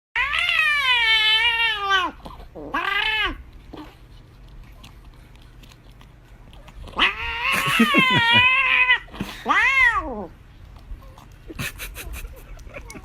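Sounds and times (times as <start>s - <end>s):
cat yowling: 0.2s - 3.4s, 6.9s - 10.3s.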